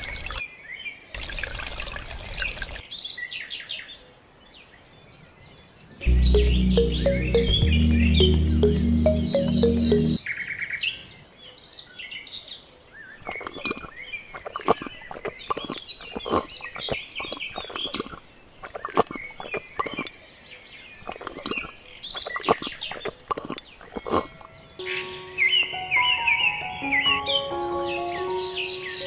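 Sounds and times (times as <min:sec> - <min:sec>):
birds chirping and twittering: 0:12.9 - 0:29.0.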